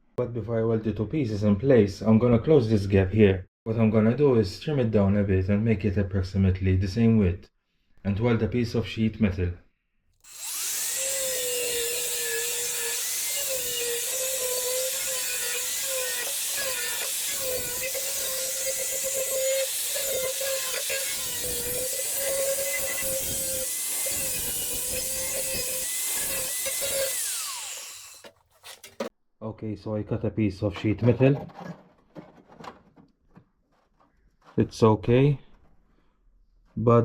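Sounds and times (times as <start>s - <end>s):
power tool cutting sheet metal: 10.3s - 29.1s.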